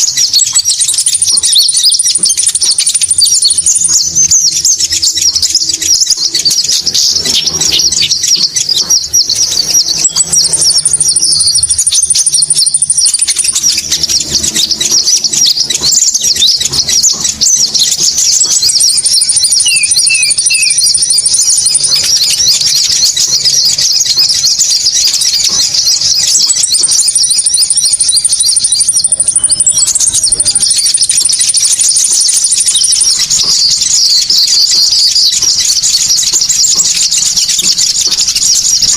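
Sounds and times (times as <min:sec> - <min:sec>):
birds chittering: 0:00.0 - 0:38.9
very high whistle: 0:18.4 - 0:23.6.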